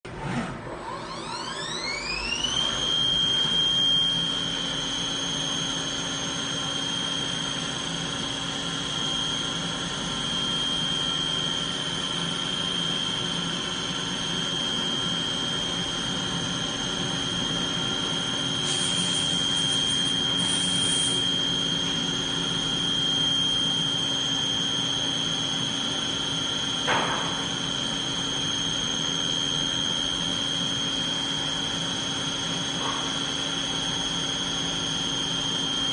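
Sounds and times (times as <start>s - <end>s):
machine spindle whining: 0.1s - 31.5s
brief knock: 26.9s - 27.4s.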